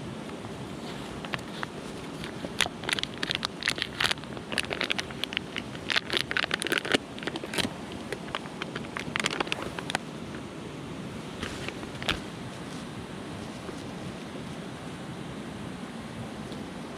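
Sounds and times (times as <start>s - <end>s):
mountain stream rushing: 0.0s - 16.9s.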